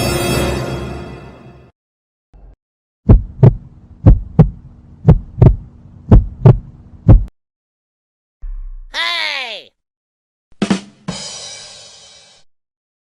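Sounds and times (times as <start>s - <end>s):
heartbeat thumps: 3.1s - 7.3s.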